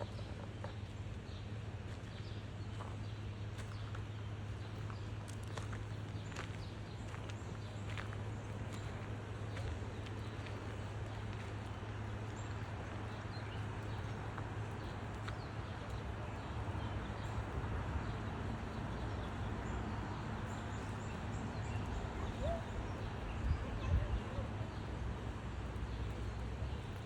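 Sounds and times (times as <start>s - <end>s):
footsteps on outdoor path: 1.8s - 16.0s.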